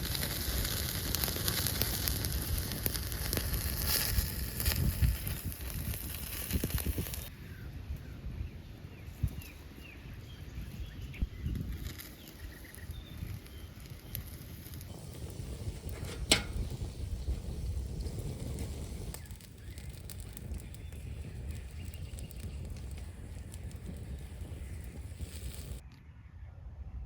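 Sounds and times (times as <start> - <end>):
wood fire crackling: 0.0 - 7.3, 11.2 - 25.8.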